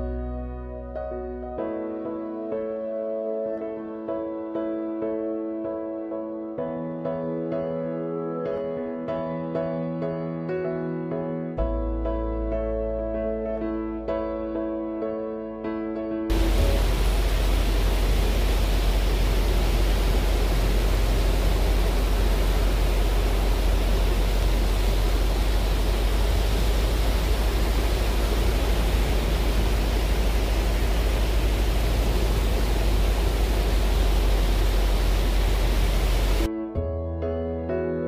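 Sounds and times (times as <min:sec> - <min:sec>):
surf breaking: 0:16.3 - 0:36.5
wind rumble on microphone: 0:16.3 - 0:36.5.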